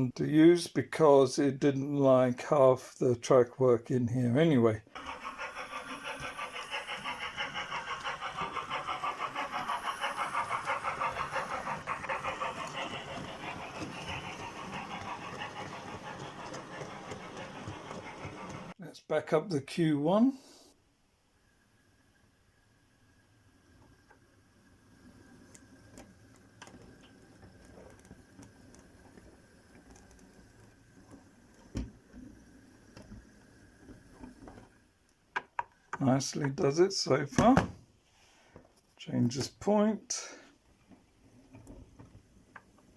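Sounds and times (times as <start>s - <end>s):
model steam locomotive puffing: 4.9s - 18.8s
wheels clicking over rail joints: 5.0s - 18.8s.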